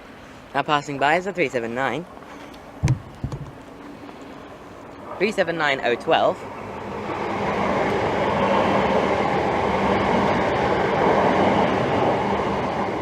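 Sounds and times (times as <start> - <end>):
train wheels rumbling on rail: 6.2 - 13.0.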